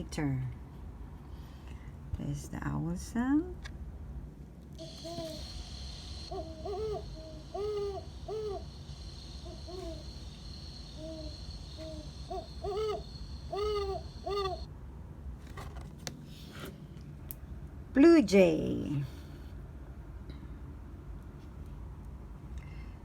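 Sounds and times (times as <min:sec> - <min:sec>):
owl hooting: 0:04.8 - 0:14.7.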